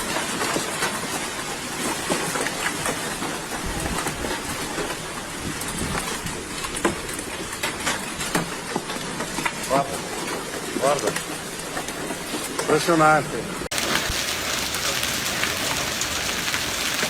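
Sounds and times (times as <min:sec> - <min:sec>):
hail hissing down: 0:13.7 - 0:17.0
hailstones striking hard surfaces: 0:13.7 - 0:17.0.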